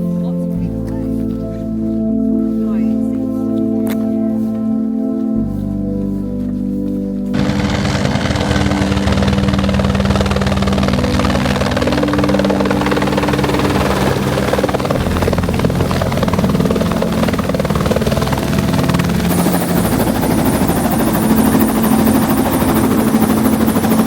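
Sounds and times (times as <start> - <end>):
helicopter droning in flight: 7.3 - 24.0.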